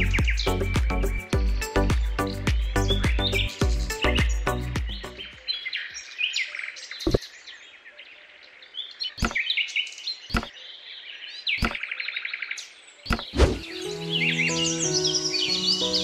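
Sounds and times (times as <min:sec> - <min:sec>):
small birds chirping: 0:00.0 - 0:16.0
sharp knocks: 0:09.2 - 0:09.4, 0:10.3 - 0:10.5, 0:11.6 - 0:11.8, 0:13.1 - 0:13.6.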